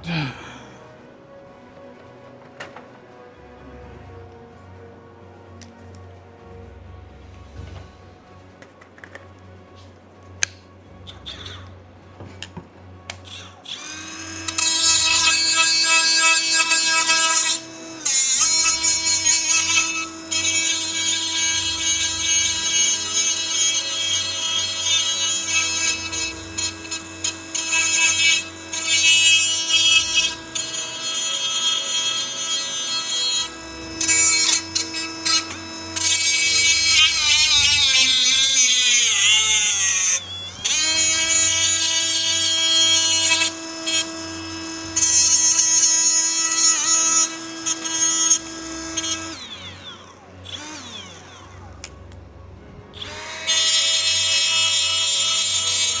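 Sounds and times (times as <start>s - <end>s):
angle grinder grinding metal: 13.1s - 52.1s, 52.7s - 56.0s.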